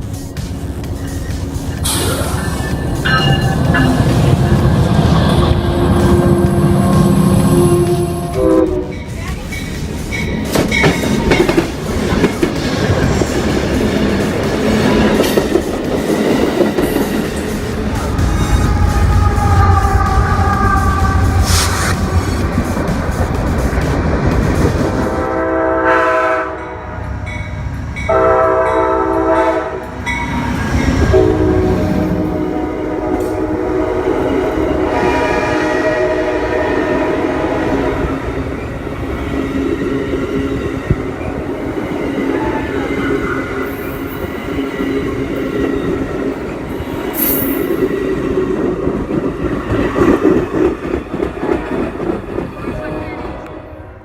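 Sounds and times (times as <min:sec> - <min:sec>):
train rumbling past: 0:00.0 - 0:54.0
train air horn blasts: 0:04.0 - 0:09.1, 0:18.5 - 0:22.5, 0:25.1 - 0:27.1, 0:28.1 - 0:30.1, 0:31.0 - 0:38.1
brief high hiss: 0:21.4 - 0:22.1.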